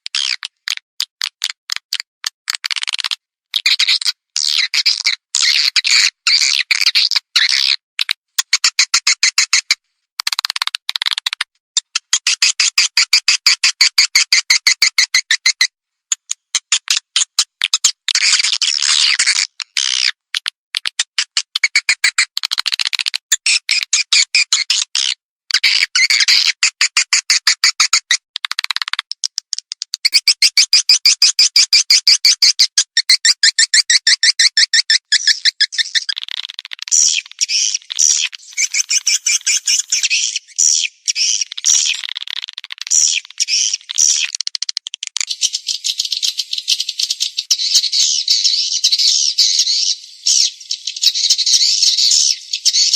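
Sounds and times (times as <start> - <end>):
swiftlet chirps and clicks: 28.5 - 31.8, 34.9 - 52.9.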